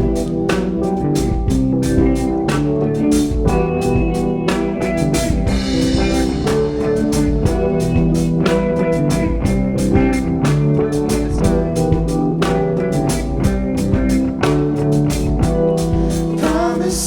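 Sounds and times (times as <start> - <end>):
drum kit beat: 0.0 - 17.0
electric guitar: 0.0 - 17.0.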